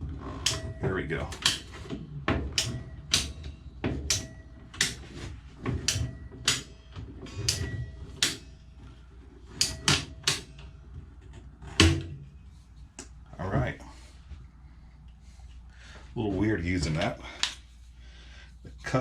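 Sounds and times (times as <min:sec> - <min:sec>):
pipe cutter clicks and clunks: 0:00.3 - 0:08.5, 0:09.5 - 0:12.2.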